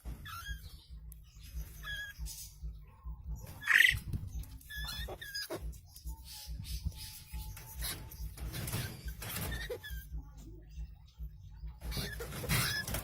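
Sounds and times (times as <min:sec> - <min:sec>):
high-pitched animal squeaks: 0:00.2 - 0:00.9, 0:01.6 - 0:02.6, 0:03.4 - 0:10.2, 0:11.8 - 0:13.0.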